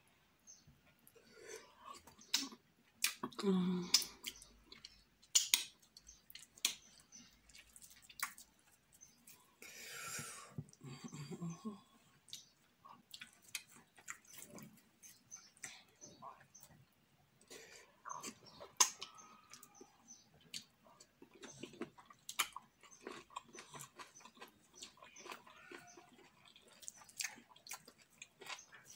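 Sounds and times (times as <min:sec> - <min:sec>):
wet chewing and lip-smacking: 0:02.0 - 0:09.5, 0:12.2 - 0:16.6, 0:18.0 - 0:28.9.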